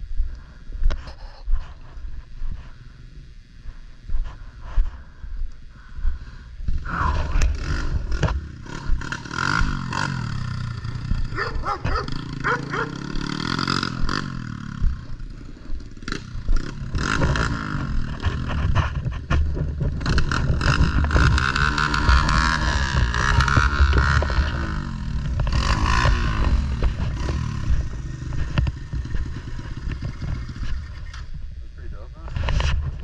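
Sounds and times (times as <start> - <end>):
small motorbike engine revving: 6.8 - 31.5.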